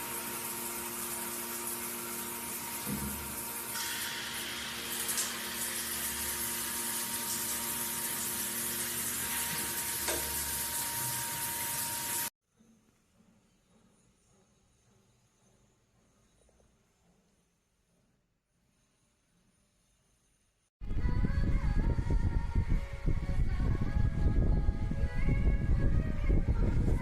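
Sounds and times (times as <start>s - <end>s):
shower water spraying: 0.0s - 12.3s
water heater hum: 0.0s - 12.3s.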